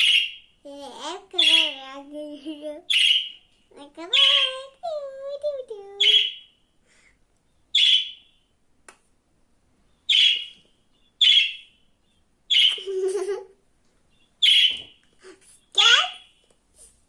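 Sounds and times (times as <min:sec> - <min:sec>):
budgerigar chirping: 0:00.0 - 0:00.4, 0:02.9 - 0:03.4, 0:07.7 - 0:08.3, 0:10.1 - 0:11.7, 0:12.5 - 0:12.8, 0:14.1 - 0:14.8.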